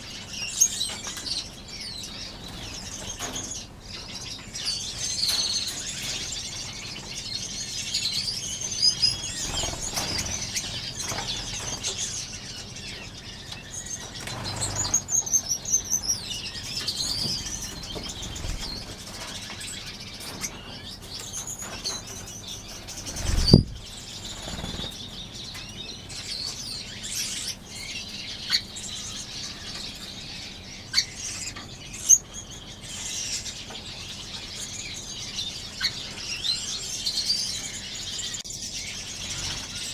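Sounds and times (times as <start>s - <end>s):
finches chirping: 0.0s - 39.9s
wings fluttering: 8.7s - 12.6s, 14.0s - 19.4s, 21.6s - 25.1s.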